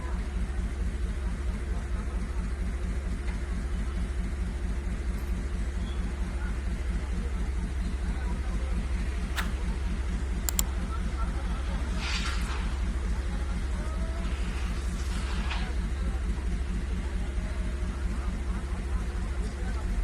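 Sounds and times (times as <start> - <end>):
heavy engine idling: 0.0 - 20.0
sharp click: 9.4 - 9.6, 10.5 - 10.7.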